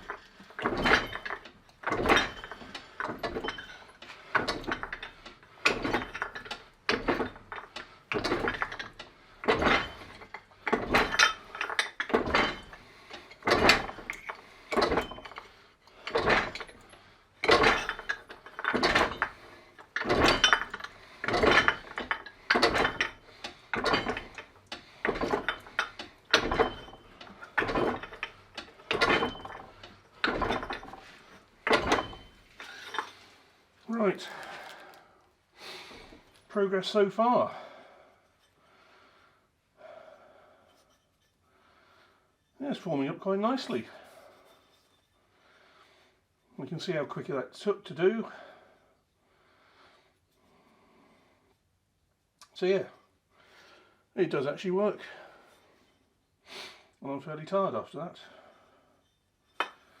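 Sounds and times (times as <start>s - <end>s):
fly press clanking: 0.0s - 33.3s.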